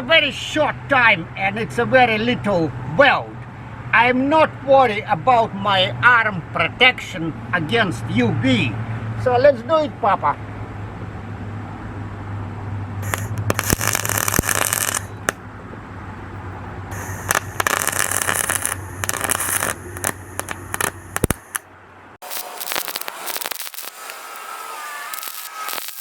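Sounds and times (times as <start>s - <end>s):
scratchy clicking and scraping: 13.0s - 15.4s, 17.2s - 21.6s, 22.2s - 26.0s
welder humming: 13.0s - 15.4s, 16.9s - 21.6s, 22.2s - 26.0s
welding arc crackle: 13.0s - 15.4s, 16.9s - 21.6s, 22.2s - 26.0s.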